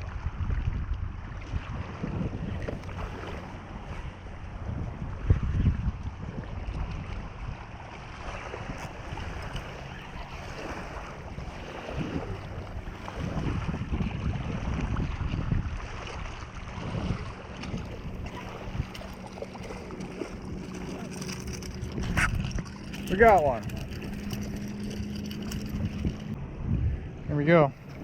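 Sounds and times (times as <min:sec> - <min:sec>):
wind buffeting microphone: 0:00.0 - 0:28.0
waves washing: 0:02.5 - 0:26.4.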